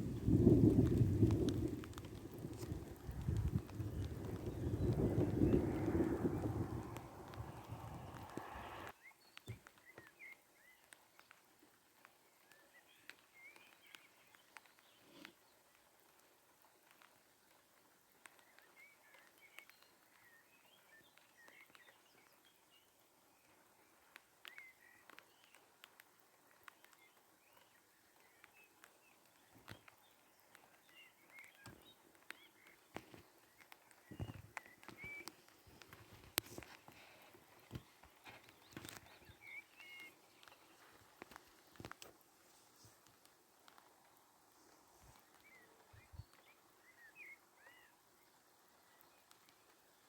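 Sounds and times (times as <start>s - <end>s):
small birds chirping: 0.0s - 11.5s, 18.0s - 50.0s.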